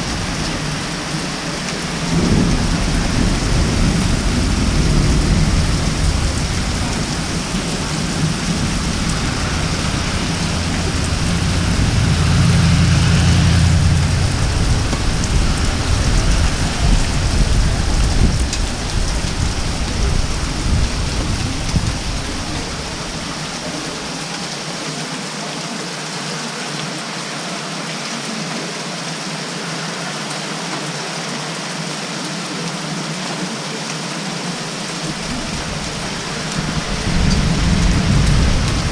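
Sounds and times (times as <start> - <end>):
heavy rain pouring: 0.0 - 38.9
thunder rolling: 1.7 - 23.7, 35.1 - 38.9.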